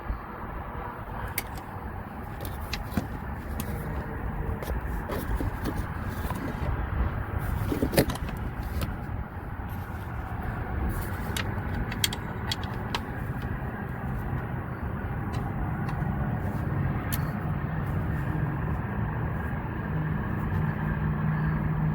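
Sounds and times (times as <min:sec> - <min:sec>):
steady low rumble: 0:00.0 - 0:21.9
light clicks and knocks on metal parts: 0:01.3 - 0:06.7, 0:09.7 - 0:14.6, 0:15.2 - 0:18.2.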